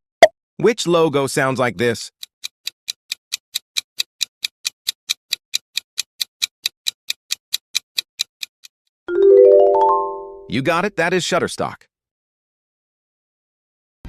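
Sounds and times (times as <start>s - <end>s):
timer ticking: 1.8s - 8.8s.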